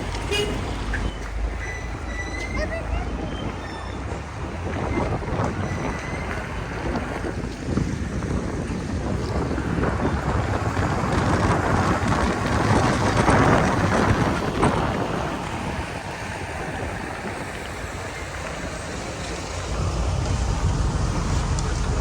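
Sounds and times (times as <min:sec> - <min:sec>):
wind on microphone: 0:00.0 - 0:22.0
rain on microphone: 0:04.7 - 0:22.0.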